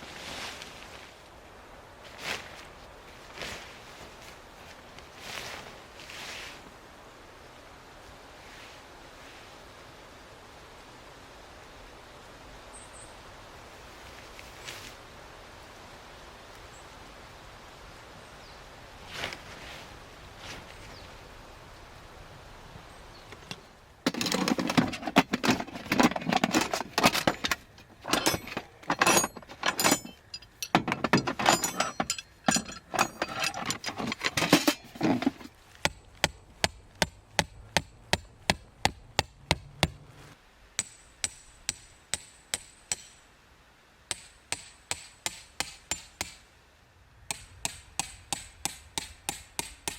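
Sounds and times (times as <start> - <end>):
handling noise: 23.3 - 40.4
hammer striking tent pegs: 24.1 - 40.0, 44.1 - 46.4, 47.3 - 49.9.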